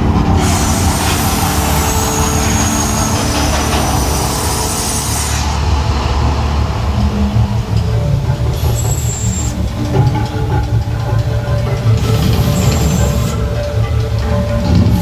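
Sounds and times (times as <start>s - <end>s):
rushing hiss: 0.0s - 10.1s
deep steady rumble: 0.0s - 15.0s.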